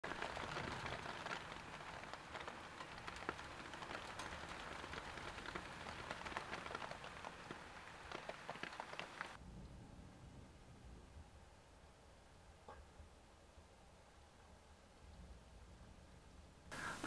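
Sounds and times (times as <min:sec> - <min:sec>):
raindrops ticking on hard surfaces: 0:00.0 - 0:09.4
steady rain: 0:00.0 - 0:09.4, 0:14.4 - 0:17.0.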